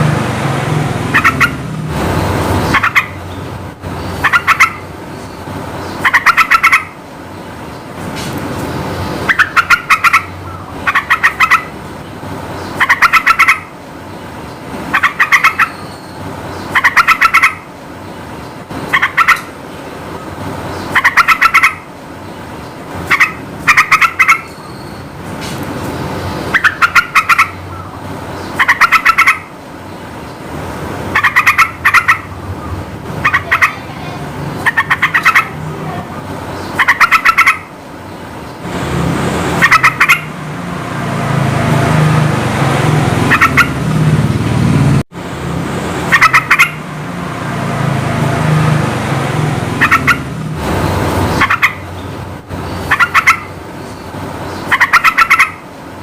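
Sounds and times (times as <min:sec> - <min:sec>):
bulbul singing bubbly phrases: 0:33.2 - 0:37.3.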